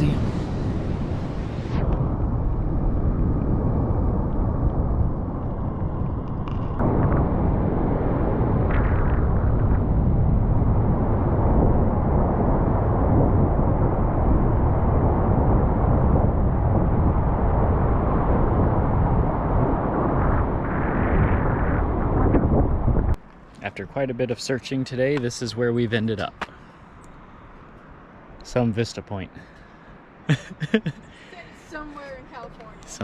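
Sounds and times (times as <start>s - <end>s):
wind buffeting microphone: 0.0s - 23.2s.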